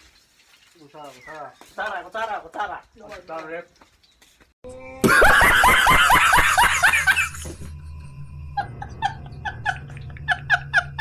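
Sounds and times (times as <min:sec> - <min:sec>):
burst of laughter: 0:05.0 - 0:07.6
low hum: 0:06.8 - 0:11.0.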